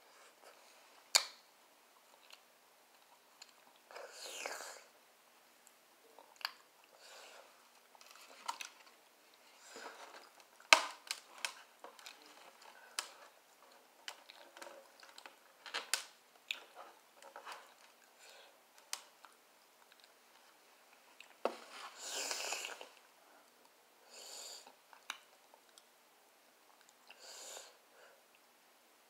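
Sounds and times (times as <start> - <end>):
long hissing noise: 21.6 - 23.4, 24.0 - 24.8, 27.2 - 28.2.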